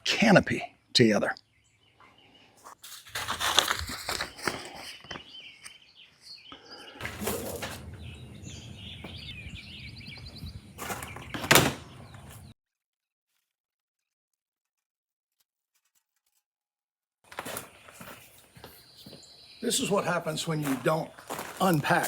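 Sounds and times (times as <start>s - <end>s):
birds chirping: 0.0s - 2.8s, 4.0s - 12.6s, 17.5s - 22.0s
rustling and clattering canopy: 2.7s - 5.2s, 7.0s - 8.2s, 10.8s - 12.5s.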